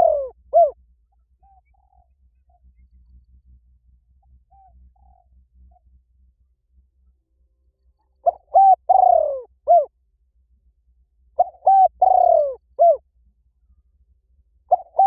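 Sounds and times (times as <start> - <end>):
bird cooing: 0.0 - 0.8, 1.4 - 2.6, 4.5 - 5.3, 8.2 - 9.9, 11.4 - 13.0, 14.7 - 15.0.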